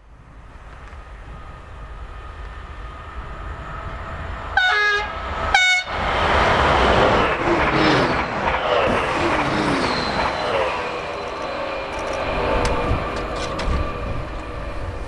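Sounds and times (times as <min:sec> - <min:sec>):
diesel train passing: 0:00.0 - 0:15.0
train horn blasts: 0:04.6 - 0:06.0.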